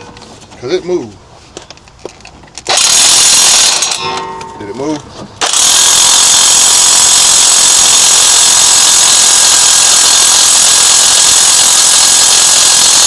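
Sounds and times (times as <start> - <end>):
impact wrench hammering: 2.7 - 13.0.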